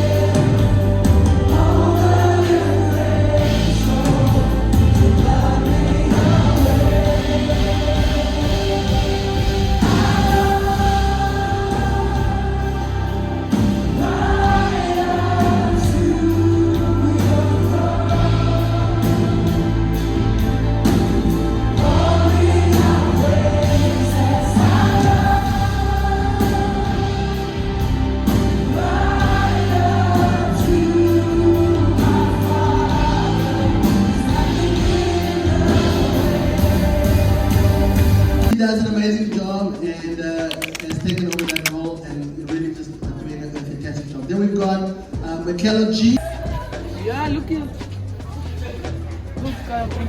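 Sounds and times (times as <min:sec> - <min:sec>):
steady bass line: 0:00.0 - 0:38.6
choir singing gospel music: 0:00.0 - 0:50.0.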